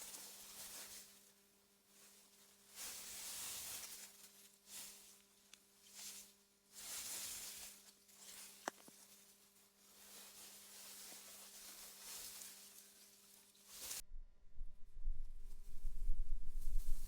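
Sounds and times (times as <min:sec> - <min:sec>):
faint steady hum: 0:00.0 - 0:17.0
wind through grass: 0:13.9 - 0:17.0.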